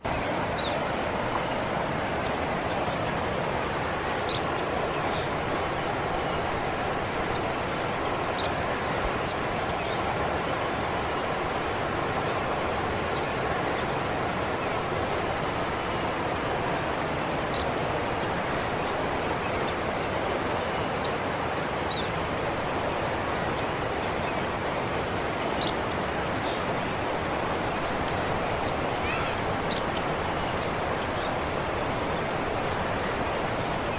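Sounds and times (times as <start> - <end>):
forest stream flowing: 0.0 - 33.9
small birds chirping: 23.0 - 33.9.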